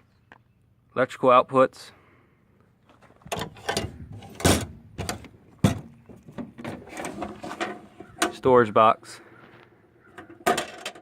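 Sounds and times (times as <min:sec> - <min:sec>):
metal doors and latches clanking: 0:03.2 - 0:08.5, 0:10.1 - 0:11.0.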